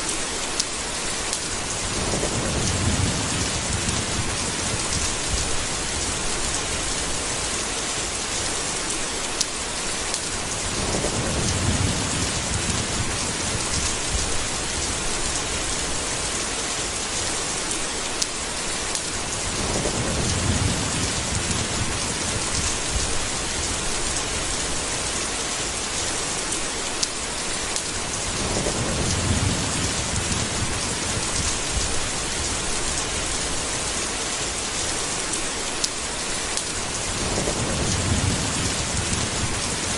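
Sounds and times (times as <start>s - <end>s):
heavy rain: 0.0s - 39.9s
thunder rolling: 1.8s - 7.0s, 10.6s - 16.1s, 19.3s - 24.2s, 28.2s - 33.2s, 37.0s - 39.9s.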